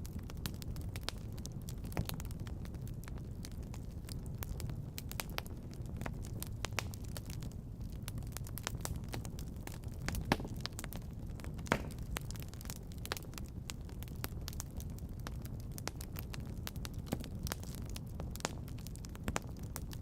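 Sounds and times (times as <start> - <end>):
low steady rumble: 0.0 - 20.0
wood fire crackling: 0.0 - 20.0.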